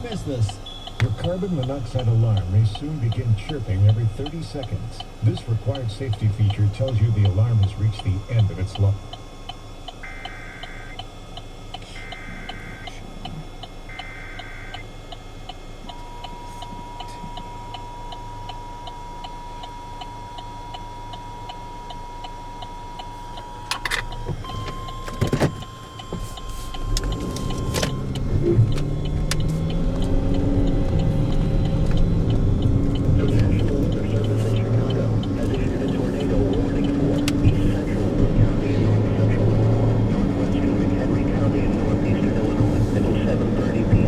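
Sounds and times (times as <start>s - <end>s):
warbling data bursts: 0.0s - 25.0s, 25.6s - 44.0s
steady attention tone: 0.0s - 44.0s
low rumble: 26.8s - 44.0s.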